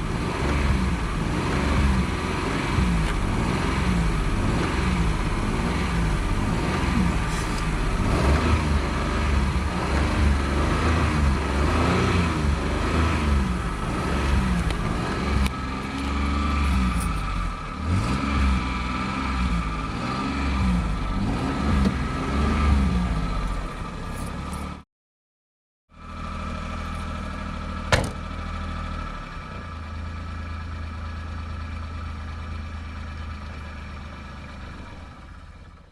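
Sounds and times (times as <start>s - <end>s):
car engine revving: 0.0s - 24.8s.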